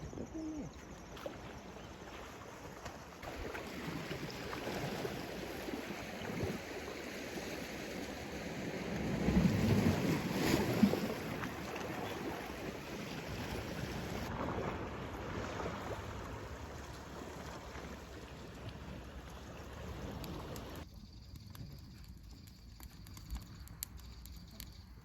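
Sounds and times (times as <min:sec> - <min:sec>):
sea waves washing on shore: 0:01.2 - 0:20.8.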